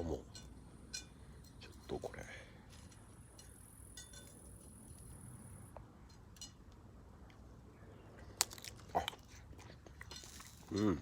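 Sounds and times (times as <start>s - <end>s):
person chewing food: 8.4s - 11.0s.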